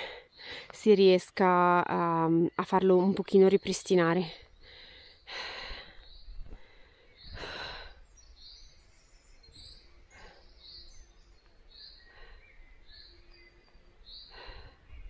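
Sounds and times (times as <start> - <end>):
small birds chirping: 0.0 - 15.0
person breathing: 4.5 - 8.2, 11.7 - 13.1, 14.1 - 15.0.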